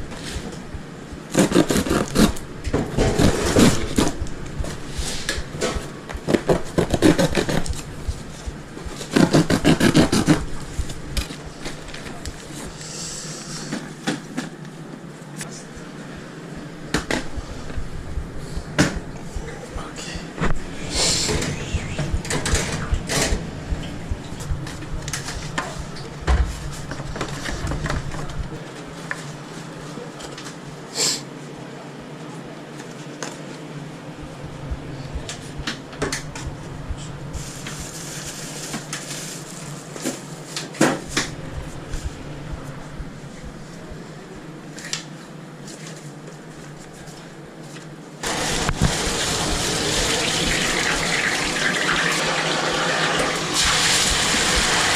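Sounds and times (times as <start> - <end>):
steady hum: 0.0 - 32.7, 33.5 - 54.9
water running from a tap: 48.3 - 54.9.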